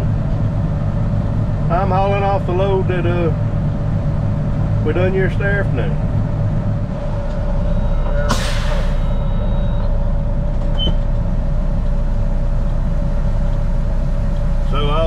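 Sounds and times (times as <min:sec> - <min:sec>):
diesel truck engine running: 0:00.0 - 0:15.0
air brakes hissing: 0:07.7 - 0:09.8.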